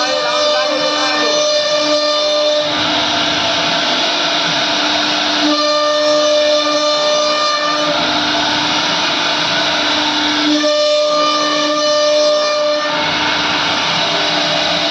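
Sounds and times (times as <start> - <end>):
cutting noise: 0.0 - 4.2
router spindle whining: 0.0 - 14.9.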